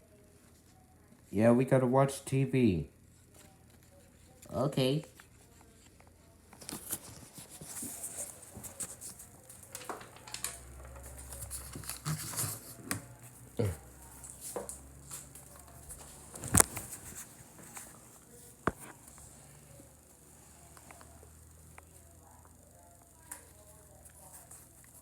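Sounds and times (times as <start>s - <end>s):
handling noises rustling and scraping: 5.2s - 13.3s, 14.0s - 19.4s.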